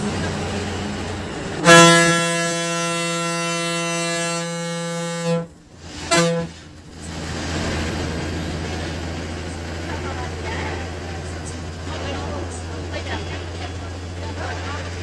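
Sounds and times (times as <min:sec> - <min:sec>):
bus engine low hum: 0:00.0 - 0:15.0
bus horn blast: 0:01.6 - 0:06.6.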